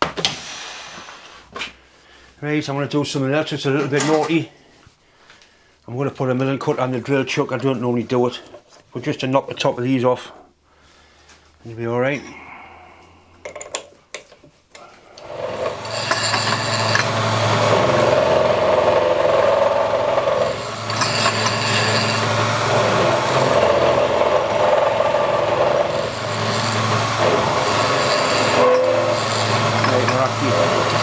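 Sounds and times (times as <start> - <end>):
milling cutter cutting metal: 15.2 - 31.0
motor hum: 15.2 - 31.0.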